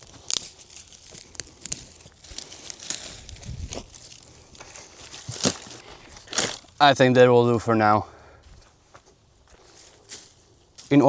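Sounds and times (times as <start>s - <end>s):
sticks snapping: 0.0s - 6.8s
sticks and leaves rustling: 0.0s - 7.2s, 8.3s - 11.0s.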